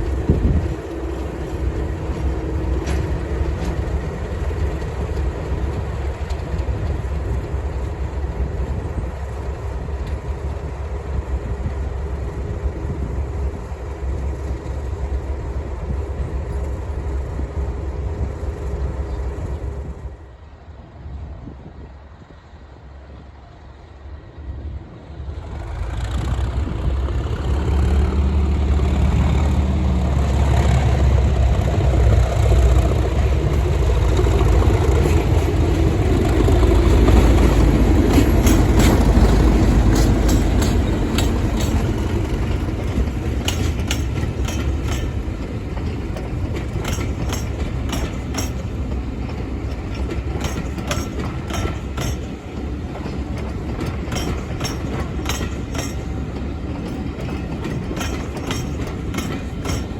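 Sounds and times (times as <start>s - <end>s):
train wheels clacking over rail joints: 0.0s - 10.6s, 25.4s - 59.9s
diesel locomotive engines running hard: 0.0s - 59.9s.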